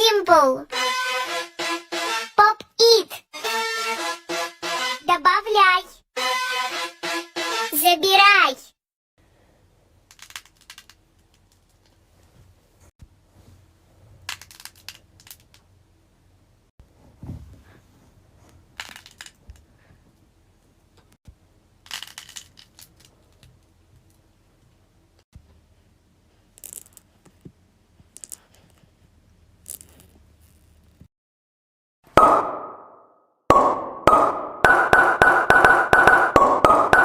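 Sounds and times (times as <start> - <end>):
fidget toys clicking and tapping: 10.1 - 11.7.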